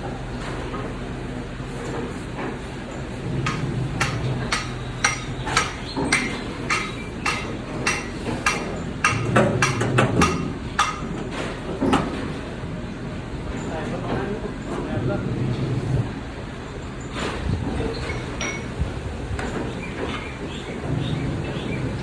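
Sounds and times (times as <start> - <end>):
machinery hum: 0.0 - 22.0
sharp knocks: 3.4 - 12.1.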